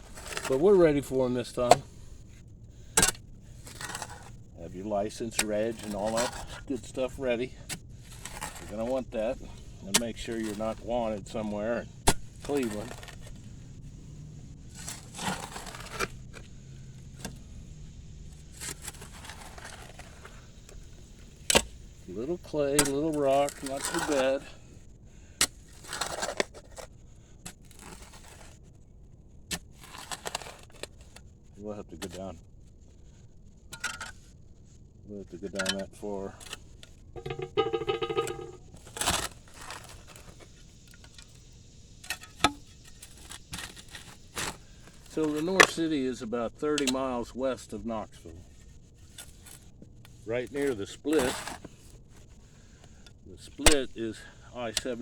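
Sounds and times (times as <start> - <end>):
shovel scraping soil: 0.0 - 2.2, 2.9 - 13.5, 14.7 - 16.4, 18.4 - 21.8, 22.5 - 24.6, 25.4 - 26.9, 27.6 - 28.6, 29.6 - 31.0, 39.0 - 40.4, 49.0 - 49.7, 50.5 - 52.0
sharp knock: 37.2 - 38.7.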